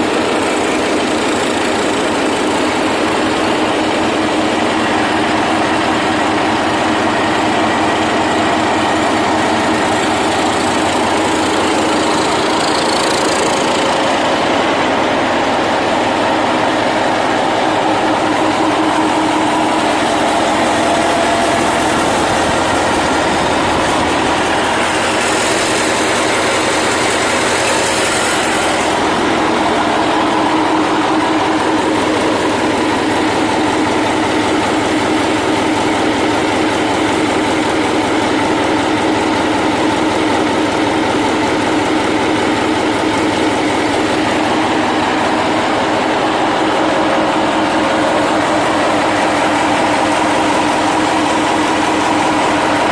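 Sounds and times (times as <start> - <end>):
engine idling: 0.0 - 52.9.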